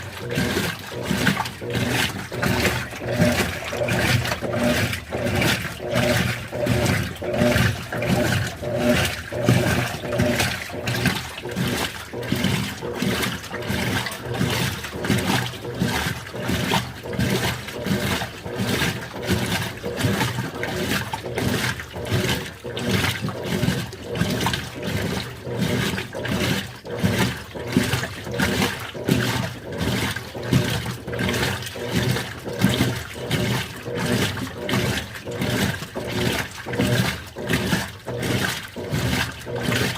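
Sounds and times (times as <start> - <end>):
washing machine sloshing water: 0.0 - 39.9.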